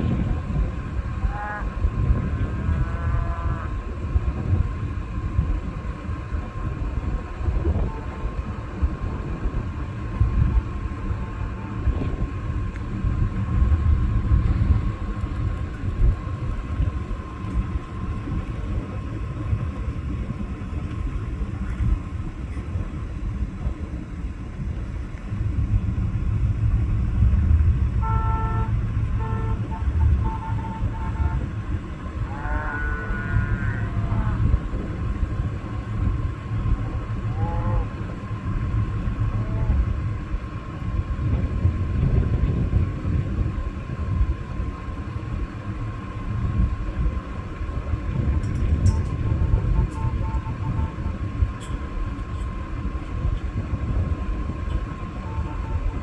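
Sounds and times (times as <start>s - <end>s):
low rumbling of cattle: 0.0s - 28.0s, 28.6s - 56.0s
cow bawling: 32.2s - 34.6s.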